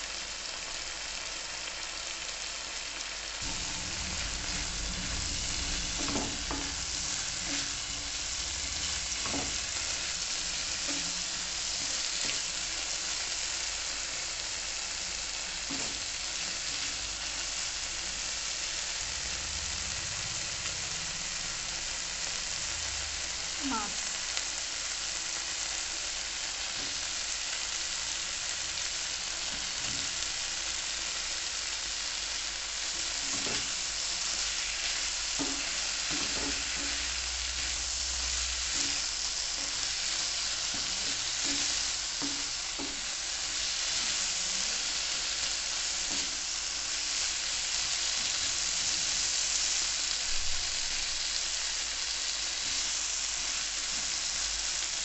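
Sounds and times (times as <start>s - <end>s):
fish frying in oil: 0.0s - 55.0s
wooden spatula scraping a pan: 3.4s - 13.2s, 33.0s - 46.7s.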